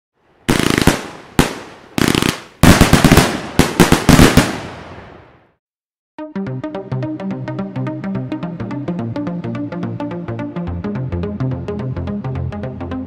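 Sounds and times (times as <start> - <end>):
fireworks bangs and crackling: 0.5 - 5.5.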